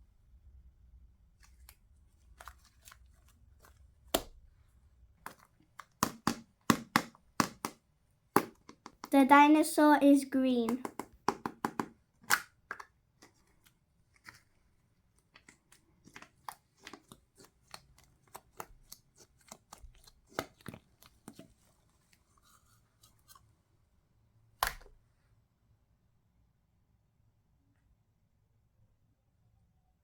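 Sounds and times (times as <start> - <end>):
coloring clicks and scratchy ticks: 15.3 - 21.6.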